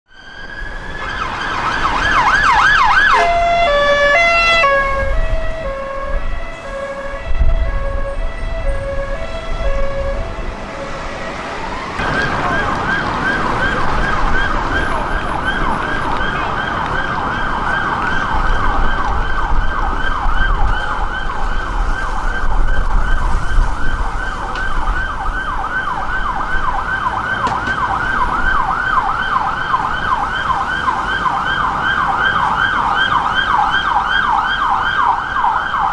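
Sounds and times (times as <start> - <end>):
emergency vehicle sirens: 0.1 - 35.9
engine and traffic rumble: 0.1 - 35.9.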